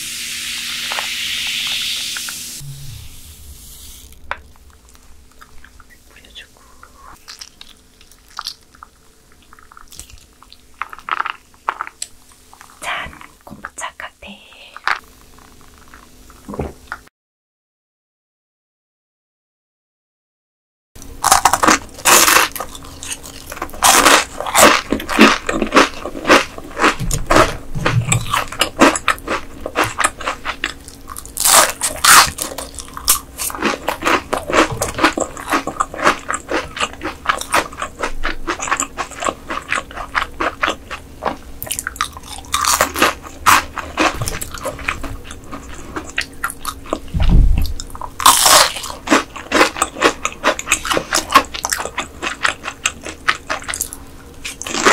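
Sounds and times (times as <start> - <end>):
crunching and chewing fried batter: 7.1 - 12.8, 14.8 - 16.5, 21.0 - 54.9.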